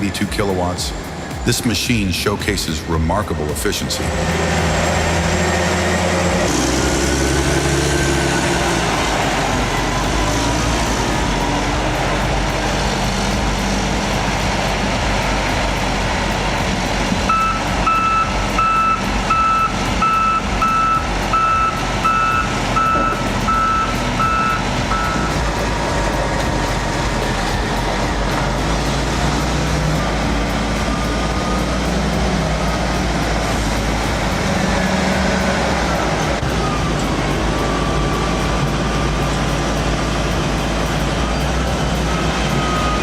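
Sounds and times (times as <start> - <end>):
wheel loader diesel engine running: 0.0 - 43.0
reversing alarm beeping: 17.3 - 25.6, 36.6 - 40.2, 41.0 - 43.0.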